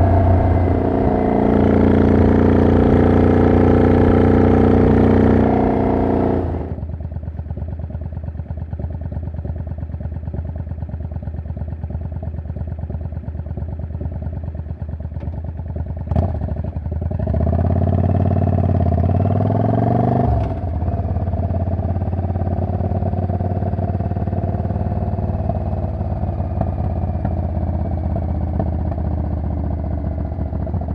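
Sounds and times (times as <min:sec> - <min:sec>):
motorcycle engine revving: 0:00.0 - 0:07.0, 0:17.2 - 0:30.9
motorcycle engine running: 0:00.0 - 0:30.9.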